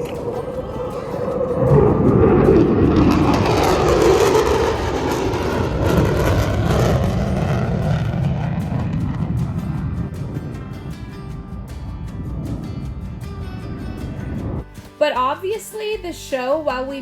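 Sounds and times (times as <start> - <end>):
jet aircraft engine roaring: 0.0 - 14.6.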